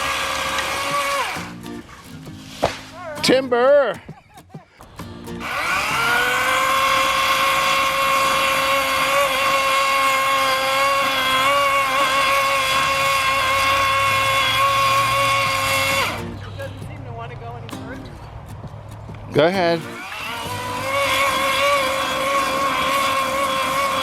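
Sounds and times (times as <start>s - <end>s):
cordless chainsaw whining: 0.0s - 2.1s, 5.0s - 16.4s, 19.6s - 24.0s.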